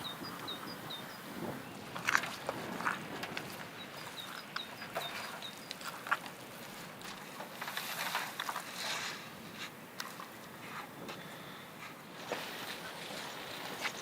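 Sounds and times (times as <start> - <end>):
small bird chirping: 0.0 - 1.7, 3.8 - 5.8.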